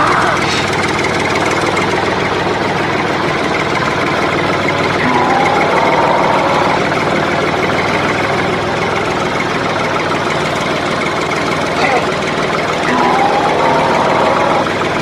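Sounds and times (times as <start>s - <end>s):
higher tone: 4.8s - 7.3s
small motor humming: 4.8s - 8.2s, 11.8s - 15.0s.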